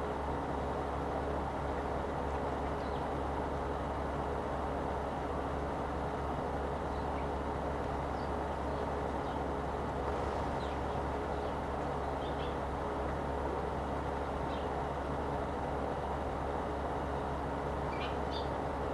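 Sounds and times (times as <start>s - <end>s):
low background rumble: 0.0s - 18.9s
sparrows chirping: 2.5s - 3.2s, 6.8s - 12.7s, 14.3s - 14.9s, 17.1s - 18.7s.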